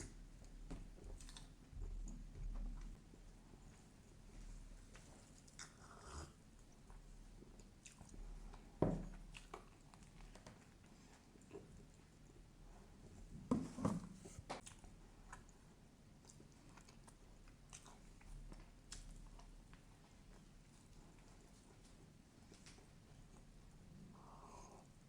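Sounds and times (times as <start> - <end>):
chewing and biting food: 6.7 - 12.4, 14.6 - 23.5.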